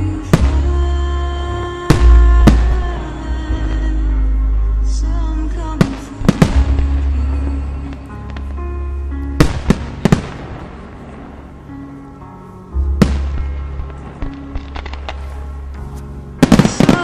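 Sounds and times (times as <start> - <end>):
music with deep bass: 0.0 - 17.0
fireworks bangs: 1.9 - 3.2, 5.8 - 8.6, 9.4 - 11.6, 13.0 - 15.5, 16.4 - 17.0.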